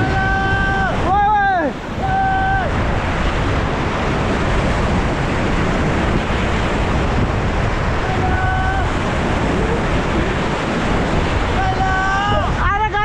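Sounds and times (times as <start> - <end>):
person shouting: 0.0 - 2.8, 8.0 - 9.9, 11.5 - 13.0
whitewater rapids roaring: 0.0 - 13.0.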